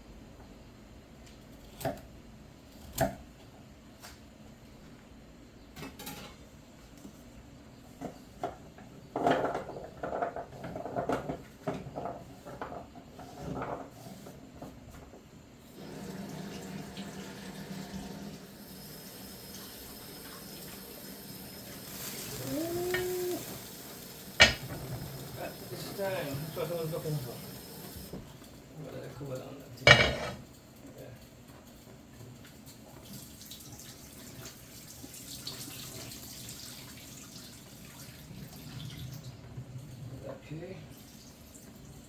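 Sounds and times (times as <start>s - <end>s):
tap water running: 15.7s - 28.2s, 32.9s - 39.6s
knocks in sink: 24.4s - 24.8s.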